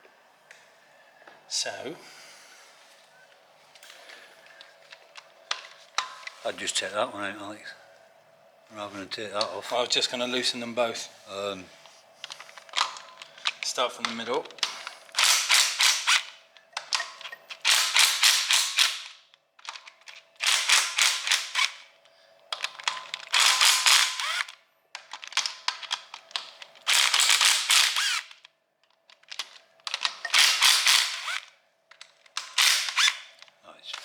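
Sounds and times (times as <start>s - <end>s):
ratchet wrench clicking: 15.1s - 19.2s, 20.4s - 21.8s, 22.6s - 24.5s, 25.8s - 28.4s, 29.9s - 31.5s, 32.3s - 33.3s.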